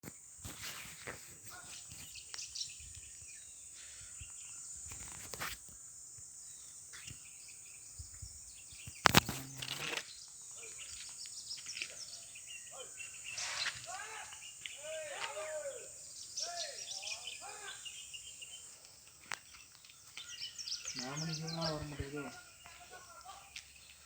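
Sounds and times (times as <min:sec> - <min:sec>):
bird chirps: 0:01.4 - 0:05.4, 0:06.4 - 0:24.0
high-pitched insect drone: 0:04.2 - 0:10.8
small clicks: 0:08.8 - 0:10.1
sharp loud click: 0:08.9 - 0:10.1.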